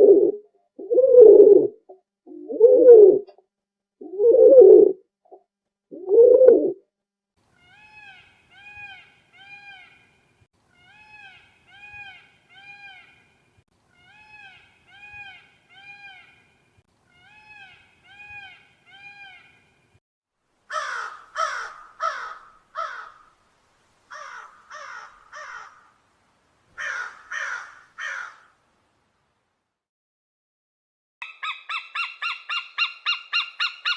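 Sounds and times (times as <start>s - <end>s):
low cooing call: 0.0s - 3.4s, 4.0s - 5.0s, 5.9s - 6.8s
crow cawing: 20.7s - 23.3s, 24.1s - 25.9s, 26.8s - 28.6s.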